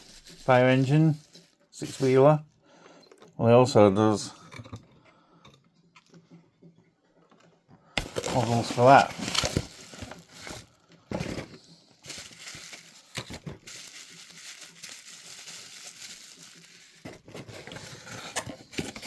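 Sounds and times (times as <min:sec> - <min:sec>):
plastic packaging crinkling: 0:00.1 - 0:02.3, 0:08.0 - 0:19.0.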